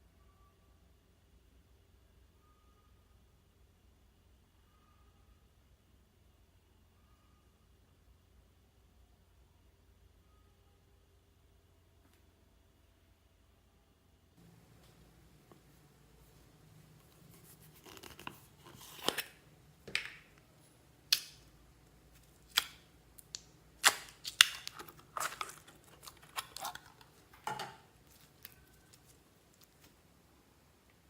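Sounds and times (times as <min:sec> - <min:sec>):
slime popping and crackling: 0:22.2 - 0:27.1.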